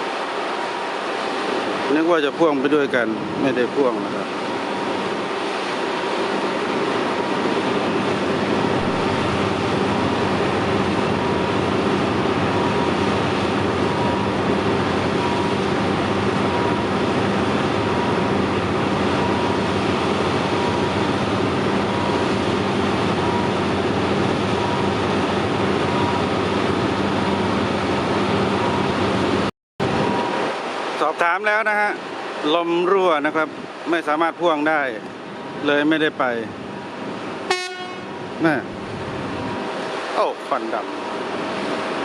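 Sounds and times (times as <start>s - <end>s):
diesel train engine running: 0.0s - 31.1s, 34.6s - 42.0s.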